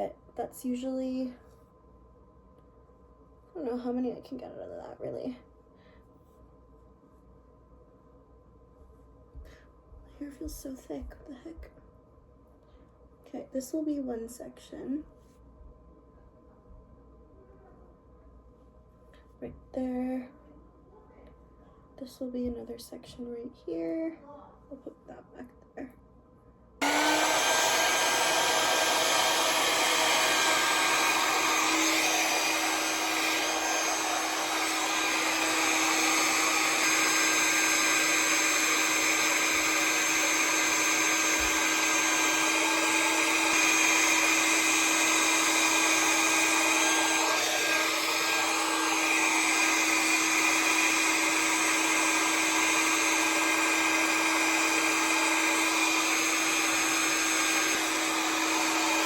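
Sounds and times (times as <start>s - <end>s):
hair dryer running: 26.8s - 59.0s.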